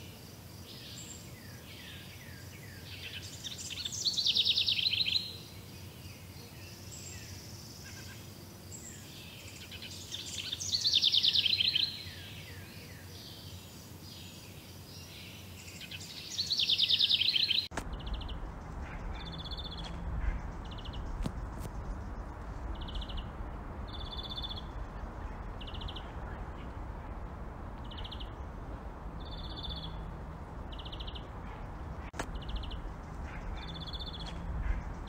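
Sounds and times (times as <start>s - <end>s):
bird singing trilled notes: 0.8s - 27.2s, 27.8s - 35.0s
soft falling bird chirps: 15.8s - 35.0s.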